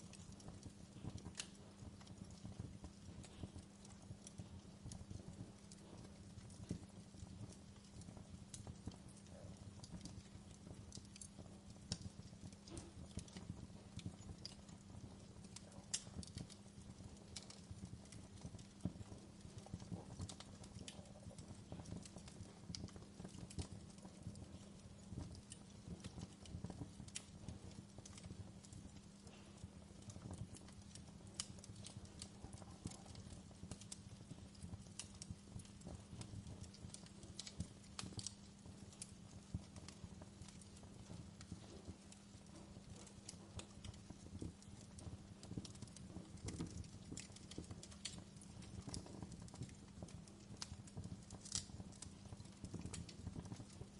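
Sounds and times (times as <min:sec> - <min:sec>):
wood fire crackling and popping: 0:00.0 - 0:53.9.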